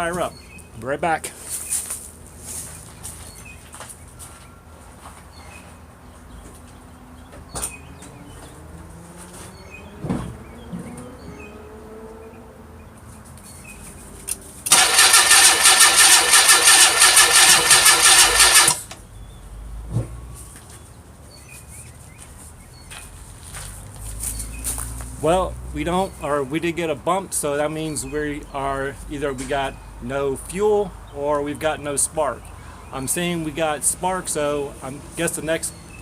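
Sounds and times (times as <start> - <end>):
car engine cranking on starter: 14.7 - 19.0.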